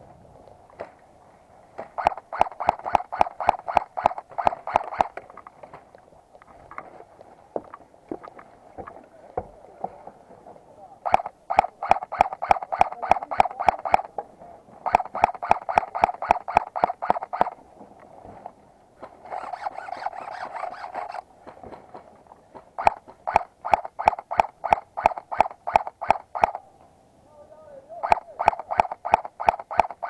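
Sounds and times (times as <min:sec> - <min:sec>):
airsoft guns firing: 0:01.8 - 0:05.2, 0:11.1 - 0:14.1, 0:14.9 - 0:17.6, 0:28.0 - 0:30.0.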